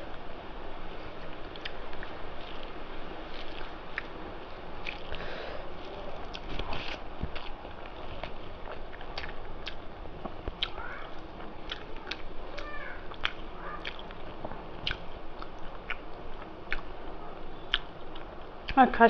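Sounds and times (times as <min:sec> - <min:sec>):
person chewing food: 0:01.3 - 0:04.2, 0:04.8 - 0:18.8
wet lip smacks and mouth clicks: 0:04.8 - 0:05.2, 0:13.1 - 0:14.2, 0:14.8 - 0:16.1.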